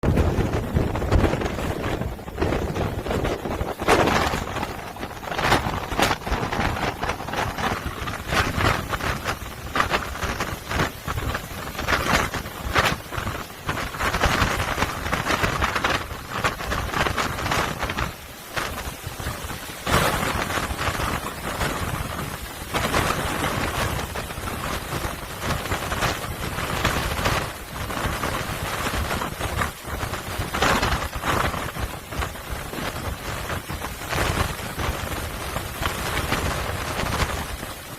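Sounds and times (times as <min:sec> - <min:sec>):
waves crashing against sea wall: 0:00.0 - 0:37.9.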